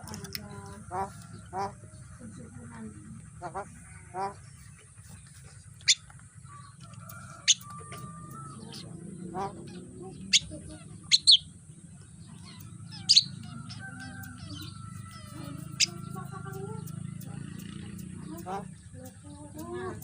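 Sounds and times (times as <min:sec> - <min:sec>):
bird soft chattering: 0:02.8 - 0:20.0
bird sharp chirps: 0:05.8 - 0:19.2.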